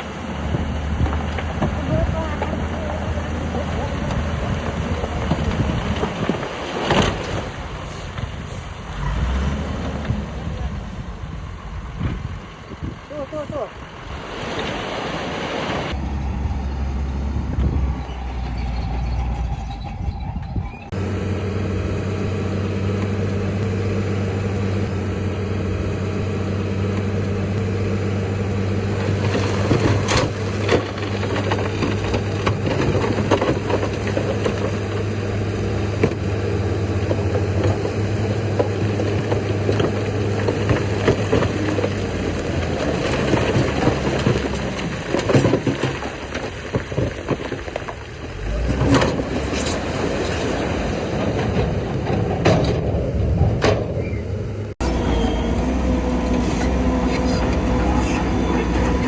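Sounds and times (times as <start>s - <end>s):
heavy diesel engine running: 0.0s - 14.1s, 15.9s - 59.0s
metallic clanks and knocks: 51.2s - 54.0s.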